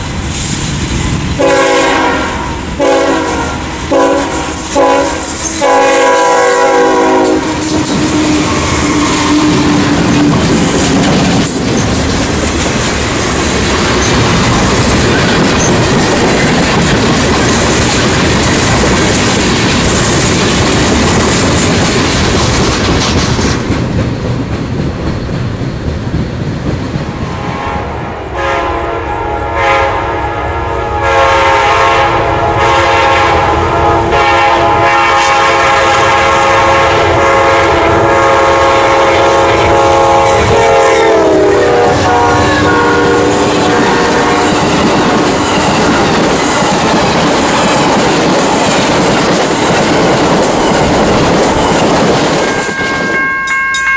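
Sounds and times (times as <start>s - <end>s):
freight train wheel-on-rail noise: 0.0s - 53.9s
locomotive horn blasts: 1.4s - 9.7s, 27.3s - 45.4s
passenger cars clickety-clack: 7.3s - 27.6s, 39.4s - 53.9s.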